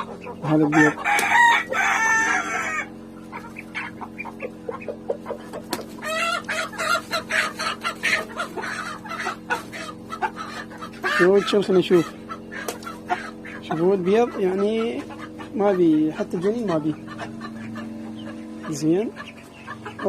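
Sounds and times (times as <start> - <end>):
chickens clucking: 0.0 - 20.0
steady low hum: 0.0 - 20.0
rooster crowing: 0.7 - 3.0.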